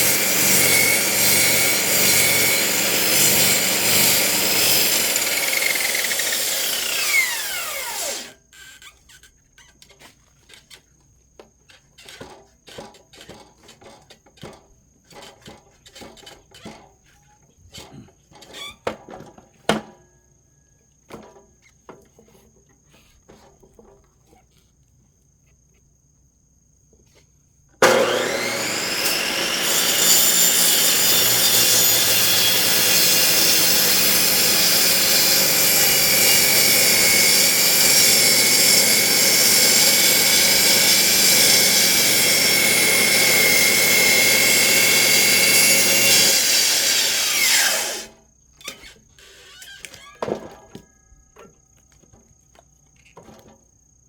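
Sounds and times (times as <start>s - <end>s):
cut-off saw cutting wood: 0.0s - 8.4s, 27.8s - 50.1s.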